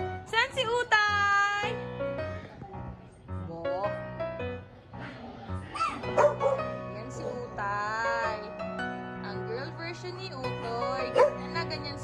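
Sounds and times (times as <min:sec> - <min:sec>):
background music: 0:00.0 - 0:12.0
puppies yipping and barking: 0:05.7 - 0:06.7.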